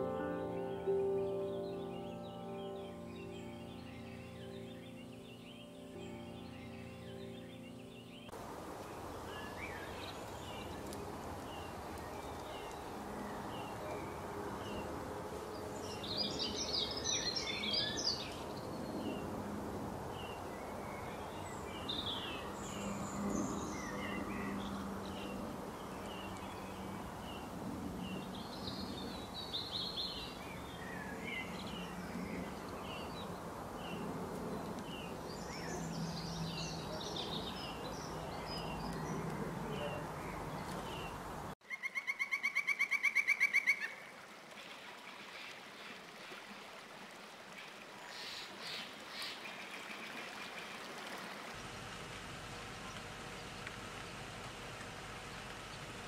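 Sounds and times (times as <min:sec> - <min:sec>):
songbirds chirping and singing: 0:00.0 - 0:08.4, 0:09.3 - 0:19.3, 0:20.1 - 0:41.5
outdoor ambience: 0:00.0 - 0:42.4, 0:43.9 - 0:56.0.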